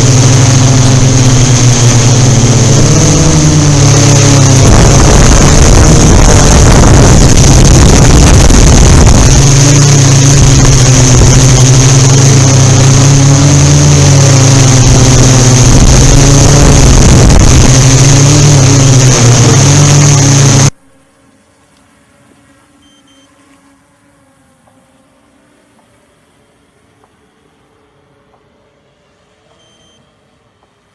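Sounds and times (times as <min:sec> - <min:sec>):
wind buffeting microphone: 0:00.0 - 0:20.7
quadcopter motors humming: 0:00.0 - 0:30.9.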